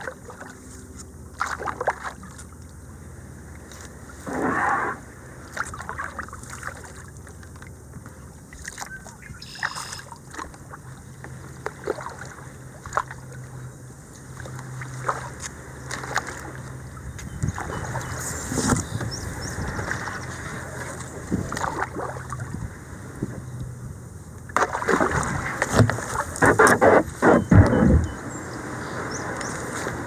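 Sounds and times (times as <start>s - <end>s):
paddle splashing: 0.0s - 23.4s, 24.4s - 30.0s
paddle knocks: 24.6s - 28.3s.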